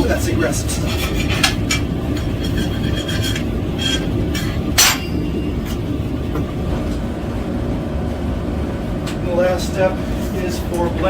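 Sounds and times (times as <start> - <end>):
hammer striking metal: 3.8 - 5.3.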